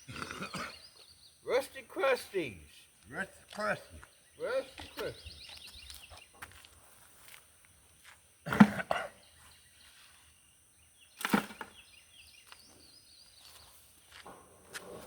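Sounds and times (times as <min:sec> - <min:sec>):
faint bird chirps: 0:03.6 - 0:06.6, 0:09.1 - 0:14.1.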